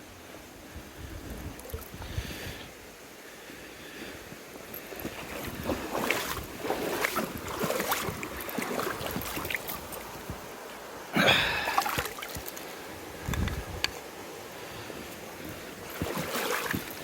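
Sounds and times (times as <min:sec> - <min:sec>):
water splashing: 0:04.7 - 0:17.0.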